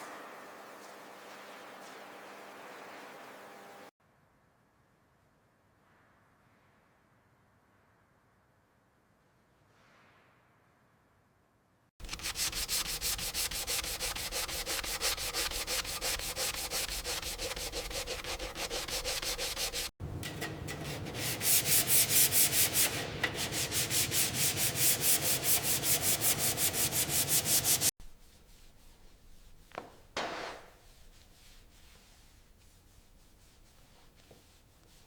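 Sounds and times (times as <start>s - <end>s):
hand sanding strokes: 0.3s - 3.9s, 12.0s - 35.0s.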